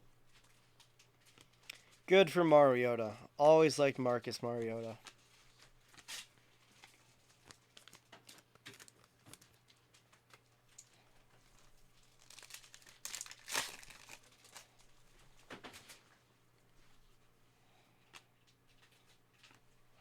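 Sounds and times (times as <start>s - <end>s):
wrappers crinkling and tearing: 0.3s - 2.0s, 4.6s - 16.0s.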